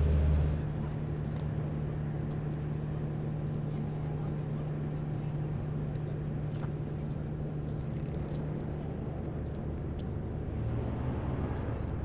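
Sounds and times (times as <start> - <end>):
city background noise: 0.0 - 0.8
low mechanical hum: 0.0 - 10.6.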